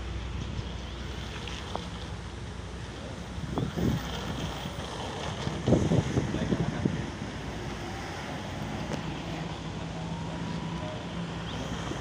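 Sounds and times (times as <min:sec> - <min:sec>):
wind buffeting microphone: 0:03.2 - 0:09.1.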